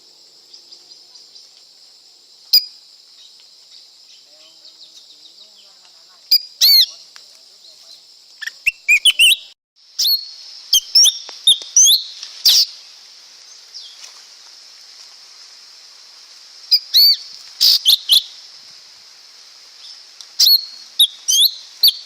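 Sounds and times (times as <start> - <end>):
steady high hiss: 0.0 - 22.0
bird chirping: 2.5 - 12.7, 19.8 - 22.0.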